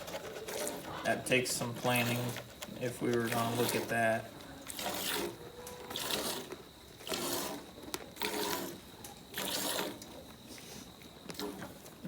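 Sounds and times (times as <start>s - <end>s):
cow milking strokes: 0.0s - 12.0s.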